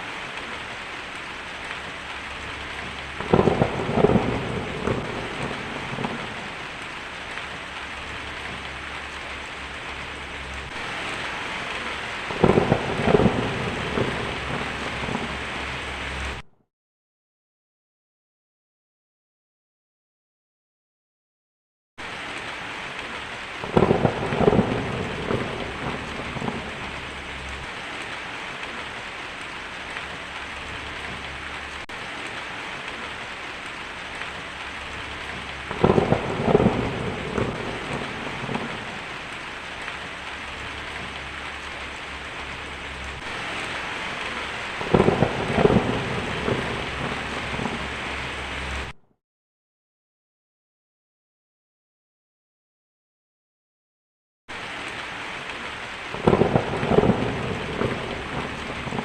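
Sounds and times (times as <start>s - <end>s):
heavy rain: 0.0s - 16.5s, 22.0s - 49.0s, 54.5s - 59.0s
thunder rolling: 2.8s - 6.7s, 9.8s - 16.4s, 23.6s - 28.2s, 34.1s - 39.8s, 40.5s - 49.0s, 56.1s - 59.0s.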